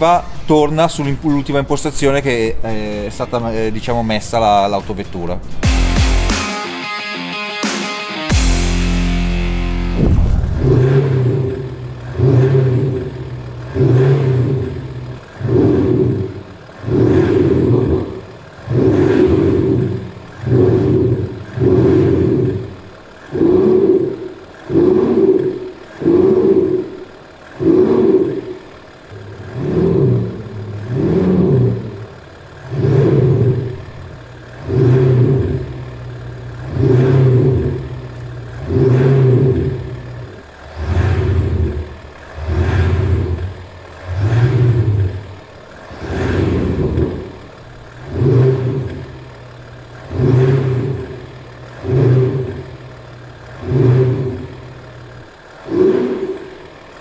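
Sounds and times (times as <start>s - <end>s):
diesel engine revving: 8.0s - 57.0s.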